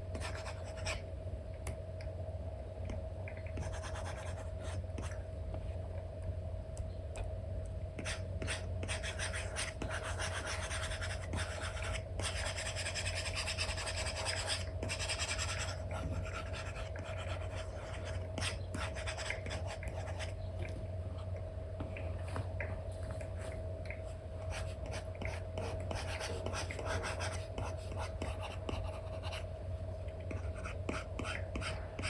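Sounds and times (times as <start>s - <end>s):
steady low hum: 0.0s - 32.0s
stylus scratching on screen: 3.6s - 5.2s, 8.0s - 20.3s, 24.5s - 29.4s.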